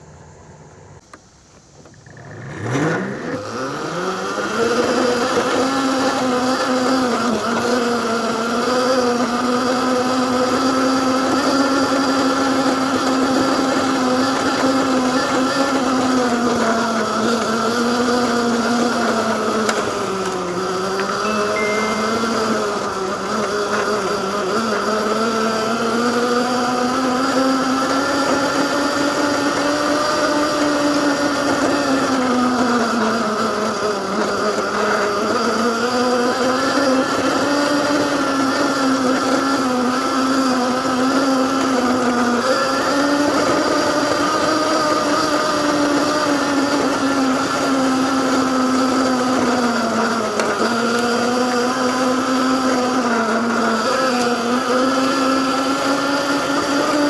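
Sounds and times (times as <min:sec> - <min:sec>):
electric motor whining: 0:00.0 - 0:57.0.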